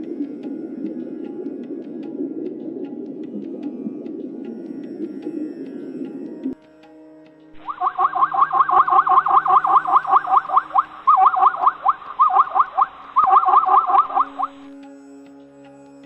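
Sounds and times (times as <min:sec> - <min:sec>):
bird calling repeated notes: 0:07.6 - 0:14.7.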